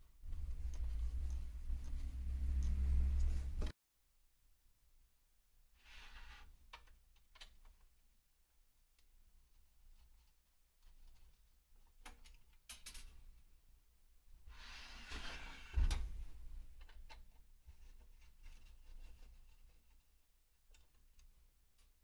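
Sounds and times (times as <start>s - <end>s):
rustling scrape: 0.0s - 3.7s
small clicks and knocks: 16.8s - 22.0s.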